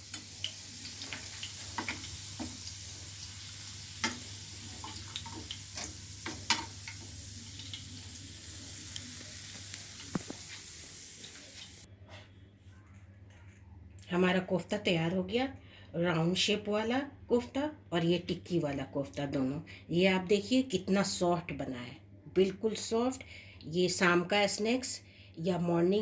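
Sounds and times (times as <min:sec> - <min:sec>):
food sizzling in hot oil: 0:00.0 - 0:11.9.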